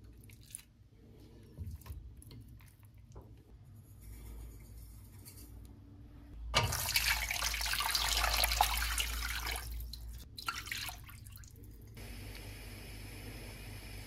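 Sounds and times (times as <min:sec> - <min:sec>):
water running: 0:06.6 - 0:12.0.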